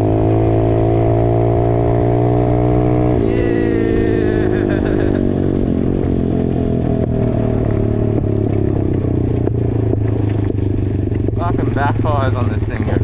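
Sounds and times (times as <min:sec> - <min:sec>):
dirt bike engine running: 0:00.0 - 0:13.0
exhaust backfire pops: 0:05.5 - 0:13.0.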